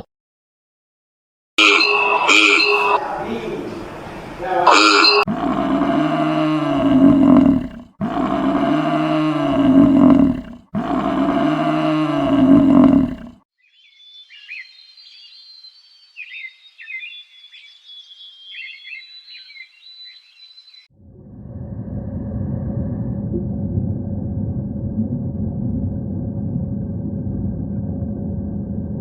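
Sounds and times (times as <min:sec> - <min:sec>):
deep roar-like animal call: 0:01.6 - 0:03.0, 0:04.6 - 0:13.4, 0:21.0 - 0:29.0.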